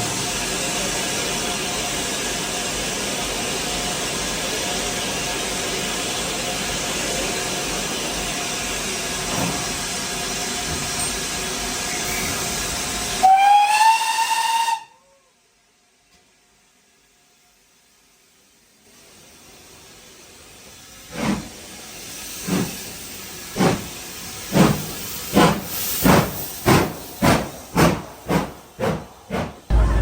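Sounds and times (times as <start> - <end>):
steam locomotive hissing: 0.0 - 15.3, 16.7 - 30.0
steam whistle: 13.1 - 15.4.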